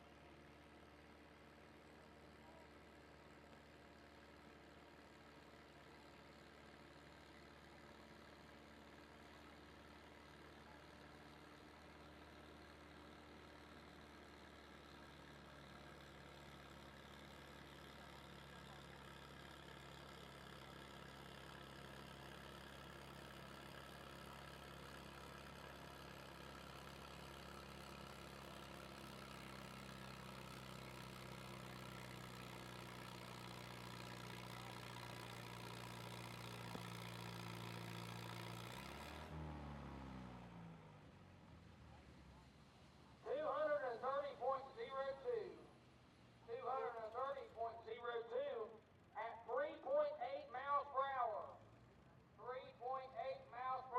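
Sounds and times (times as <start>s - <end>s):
engine running: 0.0s - 53.9s.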